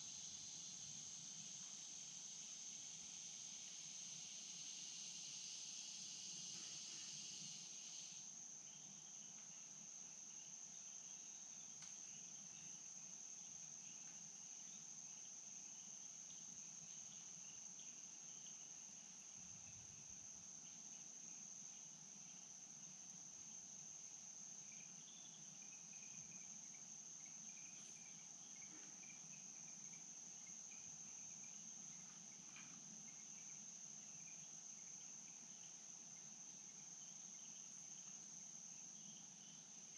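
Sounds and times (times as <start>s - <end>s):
faint chirps: 0.0s - 39.9s
insect buzzing: 0.0s - 39.9s
insects droning: 0.0s - 39.9s.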